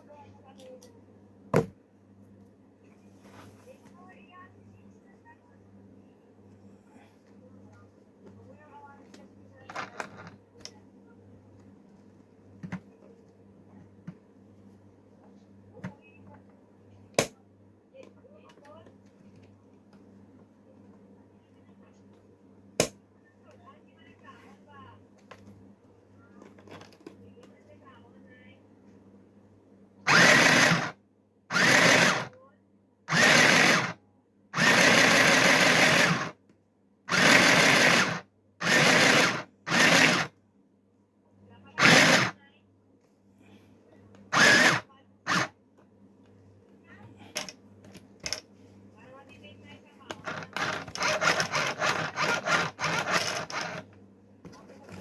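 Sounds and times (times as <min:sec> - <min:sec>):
sewing machine running: 0:30.1 - 0:30.9, 0:31.5 - 0:32.3, 0:33.1 - 0:34.0, 0:34.6 - 0:36.3, 0:37.1 - 0:40.3, 0:41.8 - 0:42.4, 0:44.3 - 0:45.5, 0:50.2 - 0:53.9.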